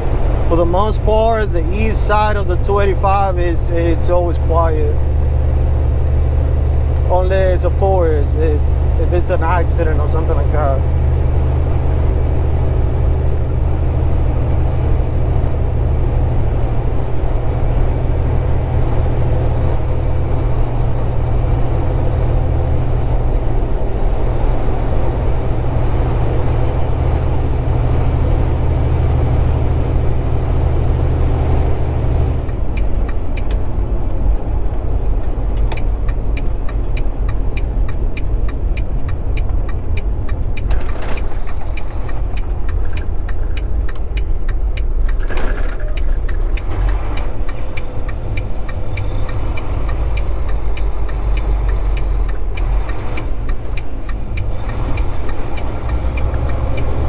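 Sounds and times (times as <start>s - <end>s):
truck diesel engine running: 0.0s - 57.0s
regular clicking: 31.2s - 57.0s.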